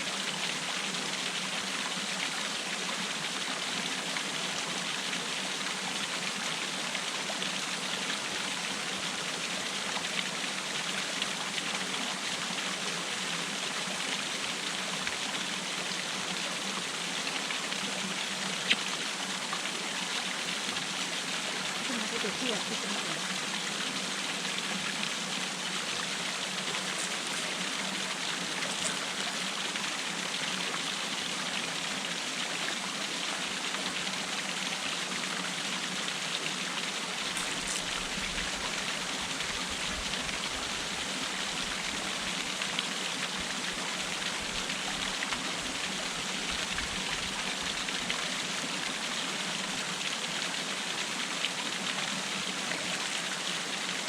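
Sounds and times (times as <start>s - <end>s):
waterfall rushing: 20.5s - 33.6s.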